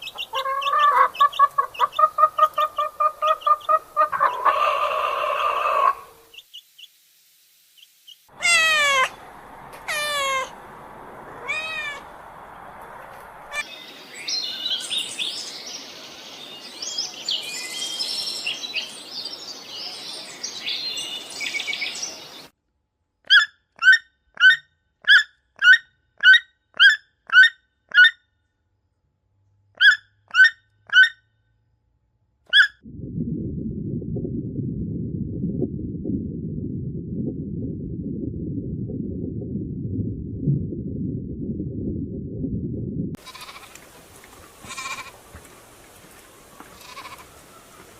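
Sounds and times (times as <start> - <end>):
chattering bird calls: 0.0 - 4.6
long falling animal calls: 0.0 - 6.3, 8.3 - 13.7, 43.2 - 47.9
low steady sound: 32.8 - 43.2.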